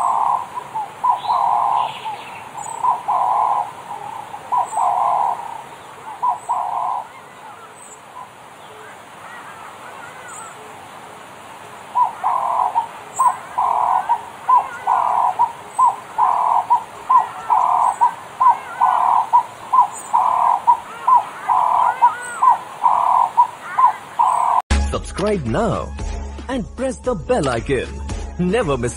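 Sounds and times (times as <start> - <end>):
bird calling rhythmically: 0.0 - 24.7
faint birds chirping: 0.0 - 24.7.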